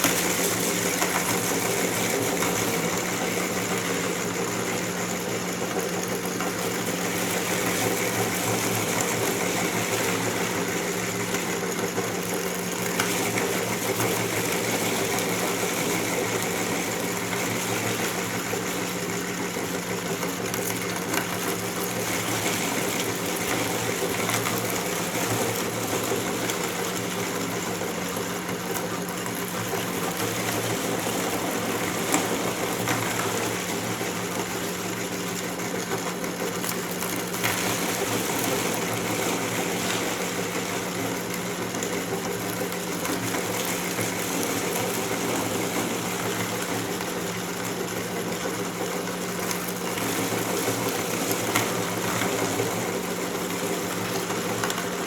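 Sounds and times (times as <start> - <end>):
electric meat grinder motor humming: 0.0 - 55.0
popcorn crunching in grinder: 0.0 - 55.0.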